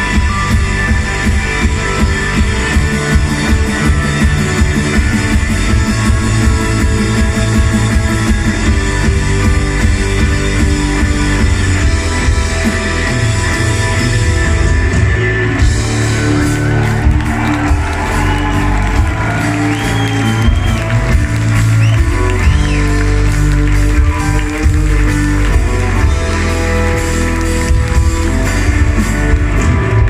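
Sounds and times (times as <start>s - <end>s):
electric guitars: 0.0s - 30.0s
rock band playing live: 0.0s - 30.0s.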